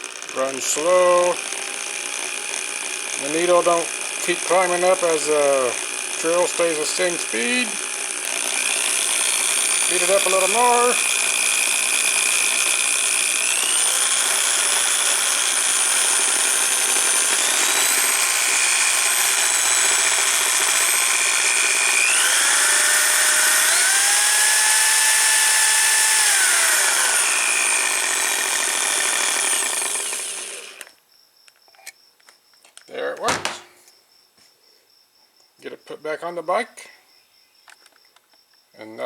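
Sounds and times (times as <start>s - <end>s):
electric drill motor whine: 0.0s - 31.0s.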